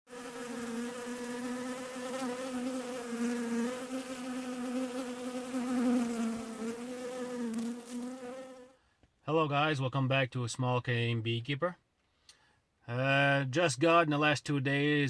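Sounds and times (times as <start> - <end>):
honeybees buzzing: 0.1 - 8.7.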